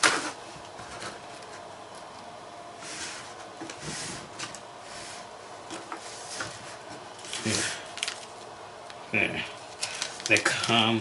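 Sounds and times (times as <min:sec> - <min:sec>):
packaging rustling: 0:06.7 - 0:08.5, 0:09.6 - 0:11.0.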